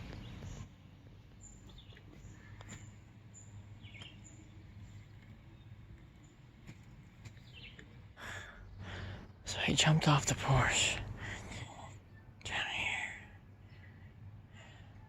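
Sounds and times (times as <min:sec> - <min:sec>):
birds chirping faintly: 0:00.0 - 0:15.0
steady background hum: 0:00.0 - 0:15.0.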